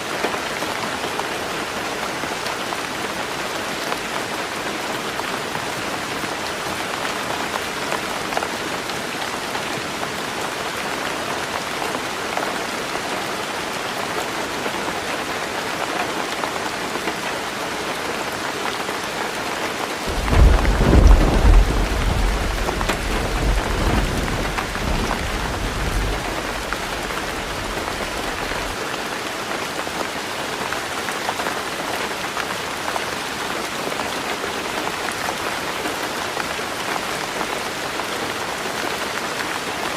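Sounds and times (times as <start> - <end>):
heavy rain on a tin roof: 0.0 - 39.9
thunder rumbling: 20.1 - 28.8.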